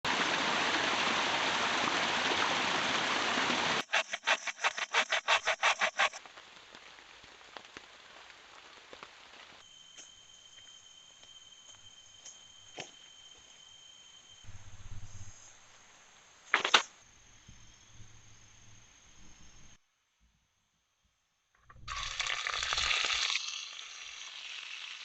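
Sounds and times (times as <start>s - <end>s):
heavy rain falling: 0.1s - 3.8s, 6.2s - 9.6s.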